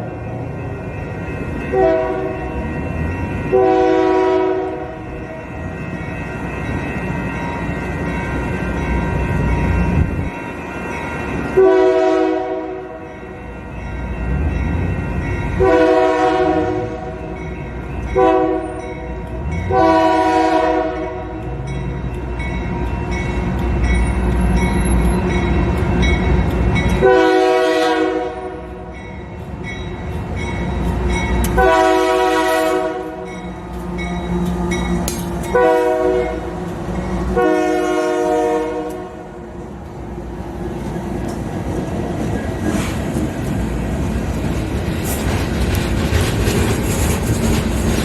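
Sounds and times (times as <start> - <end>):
train rumble: 0.0 - 48.0
locomotive air horn blasts: 1.7 - 2.4, 3.5 - 5.0, 11.6 - 13.0, 15.6 - 17.2, 18.2 - 18.8, 19.7 - 21.4, 27.0 - 28.7, 31.5 - 34.0, 35.5 - 36.5, 37.3 - 39.3.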